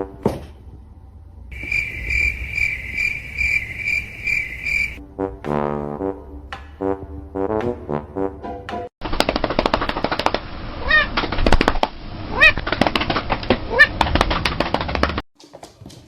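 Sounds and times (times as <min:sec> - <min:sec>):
dense crackling clicking noise: 0:09.0 - 0:10.5, 0:11.1 - 0:12.0, 0:12.6 - 0:15.2
cat meowing: 0:10.8 - 0:11.1, 0:12.3 - 0:12.6.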